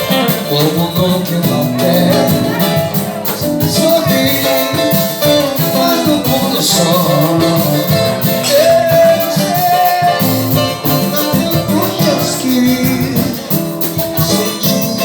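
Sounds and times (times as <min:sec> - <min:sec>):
person singing: 0:00.0 - 0:15.0
plucked strings: 0:00.0 - 0:15.0
steady percussion beat: 0:00.0 - 0:15.0.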